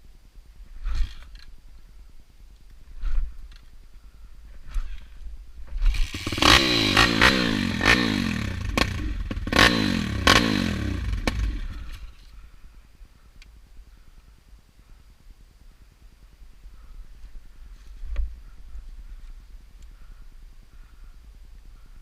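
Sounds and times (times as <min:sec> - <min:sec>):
pit bike engine revving: 0:05.8 - 0:12.2.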